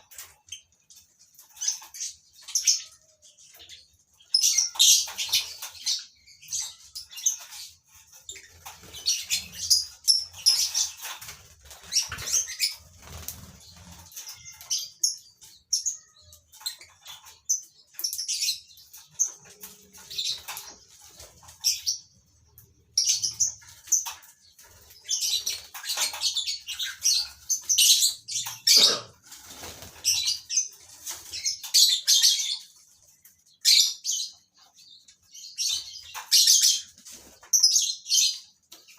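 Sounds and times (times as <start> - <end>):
lovebirds chirping: 0.0 - 38.9
wings flapping: 10.8 - 14.5, 28.8 - 31.4.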